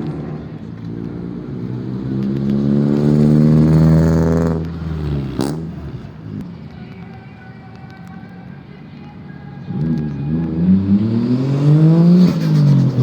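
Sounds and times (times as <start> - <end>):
car engine accelerating past: 0.0 - 6.4, 9.7 - 13.0.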